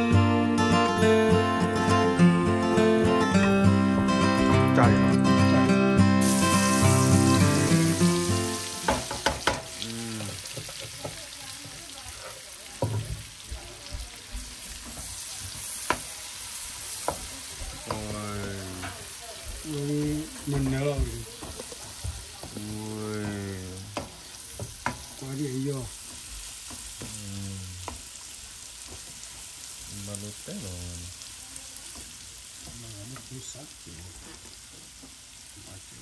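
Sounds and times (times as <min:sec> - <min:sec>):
music: 0:00.0 - 0:09.1
eggs sizzling in a pan: 0:06.0 - 0:36.0.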